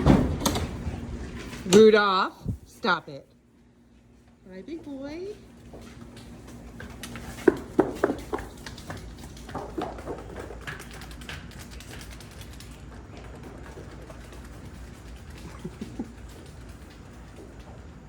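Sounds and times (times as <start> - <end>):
hooves clattering on hard floor: 4.8 - 18.0.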